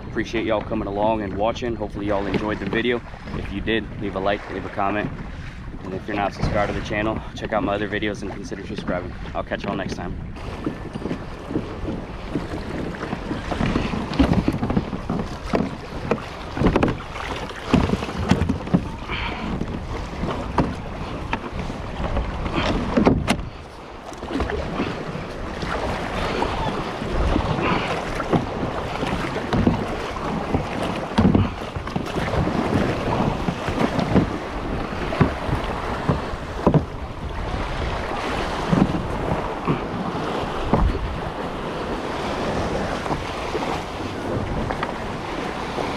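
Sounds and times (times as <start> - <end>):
water splashing against kayak hull: 0.0 - 45.9
wind buffeting microphone: 0.0 - 45.9.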